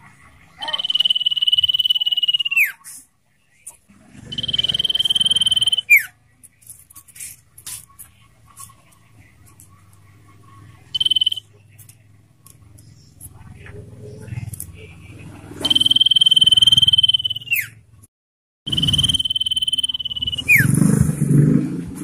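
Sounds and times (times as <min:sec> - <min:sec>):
bird trilled whistles: 0:00.6 - 0:02.8, 0:04.3 - 0:06.1, 0:10.9 - 0:11.4, 0:15.6 - 0:17.8, 0:18.7 - 0:20.8.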